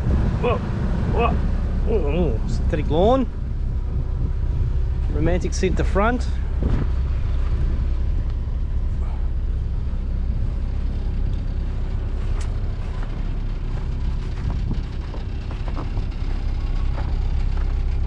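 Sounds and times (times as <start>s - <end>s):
boat engine rumbling: 0.0s - 18.0s.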